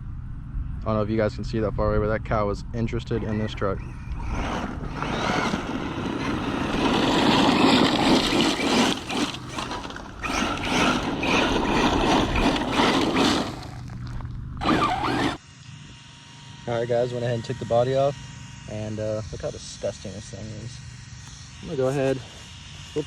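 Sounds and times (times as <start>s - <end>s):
low hum: 0.0s - 15.4s
rc truck motor and tyres: 3.0s - 15.4s.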